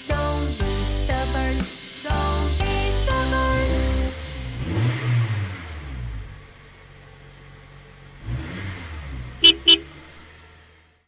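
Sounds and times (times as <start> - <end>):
cartoon bus engine revving: 0.0 - 6.6, 8.1 - 10.8
horn honks: 9.4 - 10.1.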